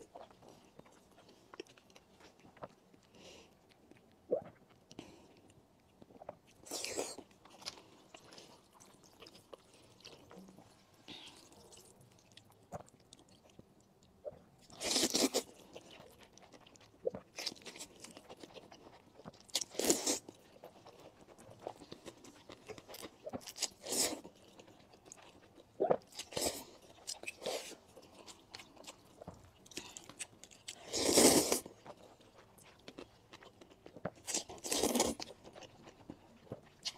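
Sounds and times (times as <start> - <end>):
crunchy biting and chewing: 14.6 - 36.9.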